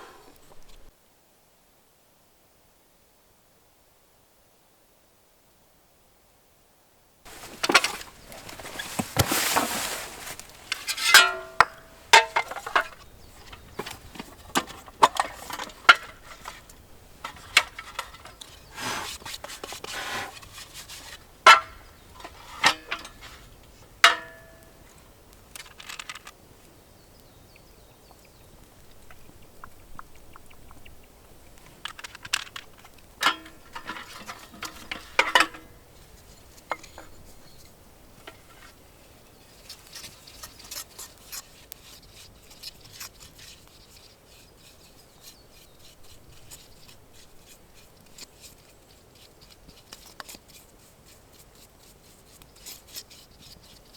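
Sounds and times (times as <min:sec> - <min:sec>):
rustle: 0:00.0 - 0:53.9
utensils clinking against cookware: 0:07.3 - 0:16.6, 0:33.2 - 0:35.7.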